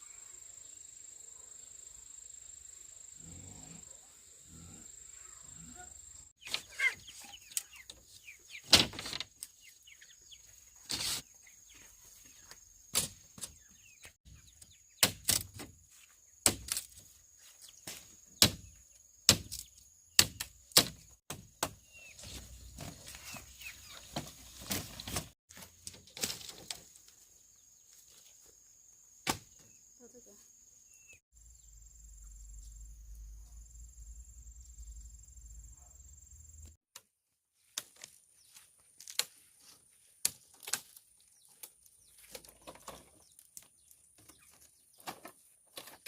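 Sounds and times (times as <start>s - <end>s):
insects droning: 0.0s - 6.4s, 26.3s - 36.8s
chopping strikes on bamboo: 15.0s - 15.7s, 16.4s - 16.9s, 17.9s - 18.7s, 19.3s - 21.8s, 29.2s - 29.6s.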